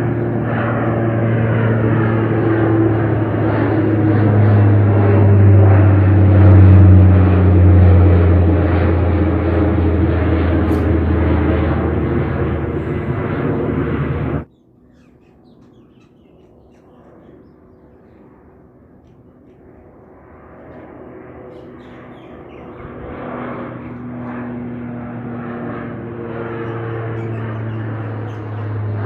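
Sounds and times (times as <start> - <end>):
aircraft passing overhead: 0.0 - 29.0
birds: 14.4 - 19.9, 21.4 - 24.5, 26.3 - 29.0.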